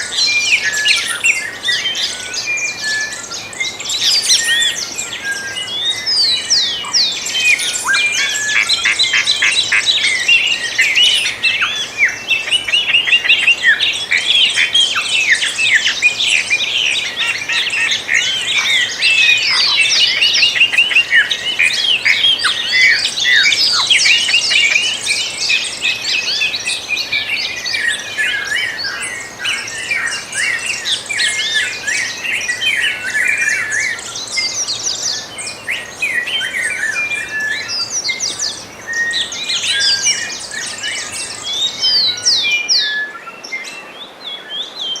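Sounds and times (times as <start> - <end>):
many birds singing: 0.0 - 45.0.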